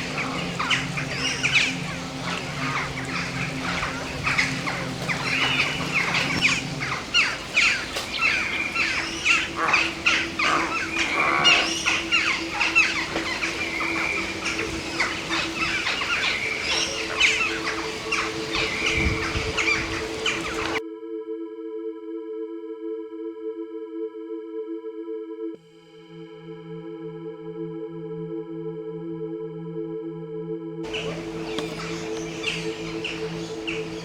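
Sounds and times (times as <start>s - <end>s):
birds chattering: 0.0s - 20.8s, 30.8s - 34.0s
steady low hum: 0.0s - 20.8s, 30.9s - 34.0s.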